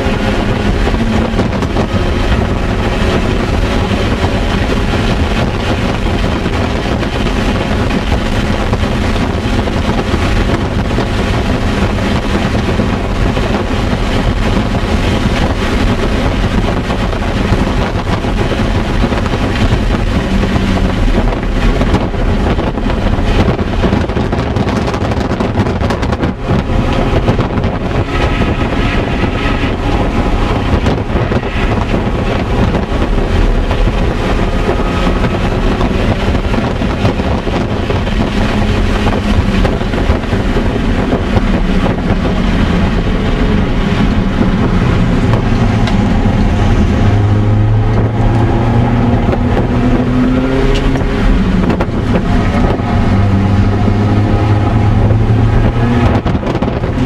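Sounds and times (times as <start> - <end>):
car engine running hard: 0.0 - 57.0
tyre and wind noise: 0.0 - 57.0.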